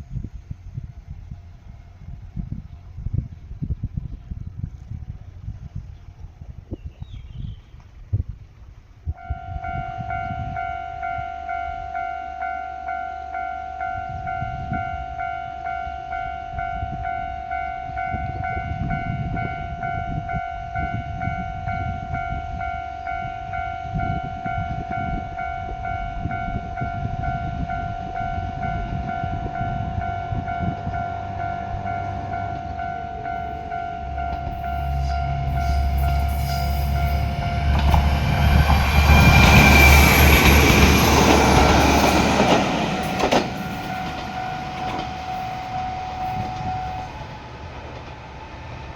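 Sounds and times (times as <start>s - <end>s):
level crossing alarm ringing: 9.4s - 47.3s
low rumble: 25.7s - 47.4s.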